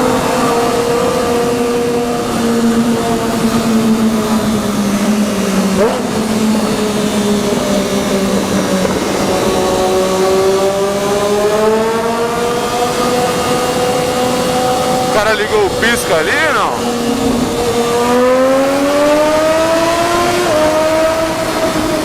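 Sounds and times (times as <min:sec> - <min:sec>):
motorcycle engine cruising: 0:00.0 - 0:22.0
wind noise: 0:00.2 - 0:11.5.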